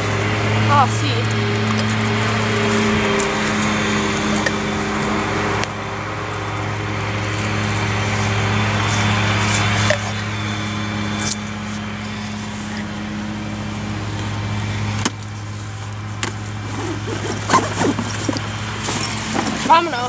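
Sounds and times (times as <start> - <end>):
faint voices: 0.0 - 20.0
low hum: 0.0 - 20.0.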